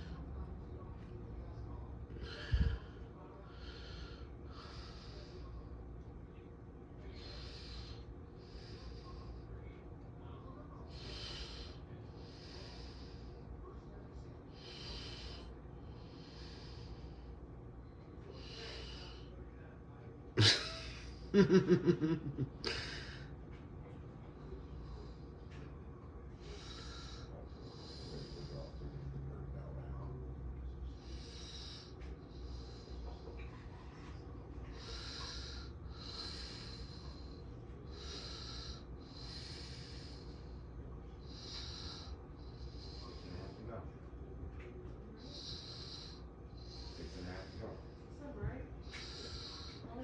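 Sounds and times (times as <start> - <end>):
person breathing: 2.2 - 5.7, 14.5 - 17.4, 18.3 - 19.3, 22.6 - 23.3, 26.4 - 28.8, 31.0 - 43.7, 45.2 - 50.0.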